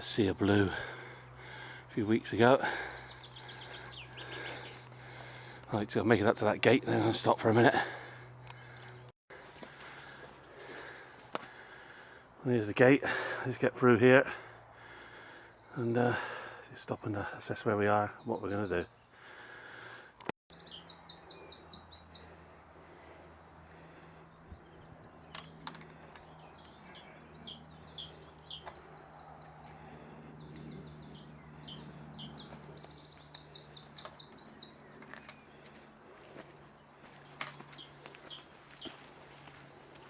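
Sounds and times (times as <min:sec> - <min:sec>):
songbirds singing trills: 0:00.0 - 0:09.1, 0:09.8 - 0:40.0
sharp clicks: 0:25.3 - 0:26.2.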